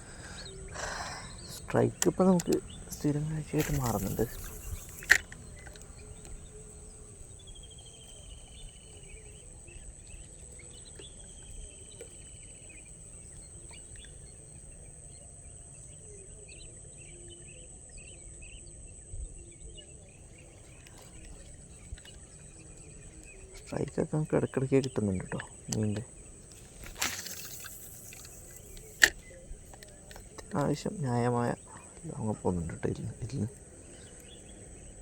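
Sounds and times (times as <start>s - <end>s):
bird chirps and trills: 0.0s - 17.6s
high-pitched insect drone: 0.0s - 35.0s.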